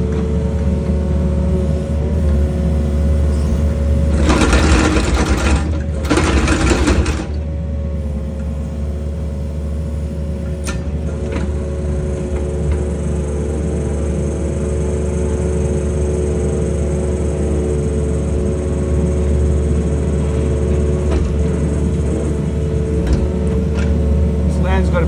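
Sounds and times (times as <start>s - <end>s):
excavator engine and hydraulics: 0.0s - 25.0s.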